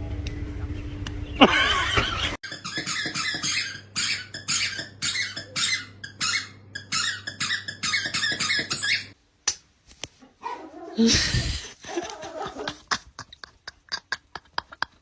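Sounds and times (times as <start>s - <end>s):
squeaky dog toy squeaking: 2.4s - 9.2s.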